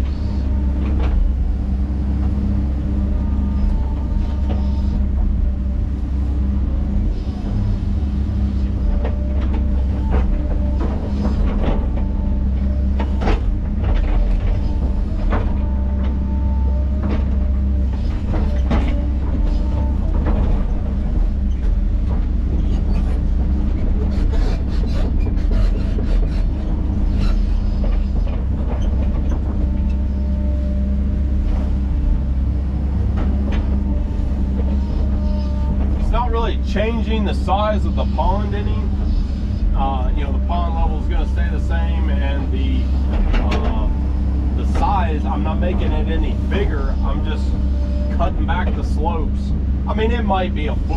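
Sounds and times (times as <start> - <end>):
diesel engine running under load: 0.0 - 50.9
steel tracks squeaking: 0.0 - 50.9.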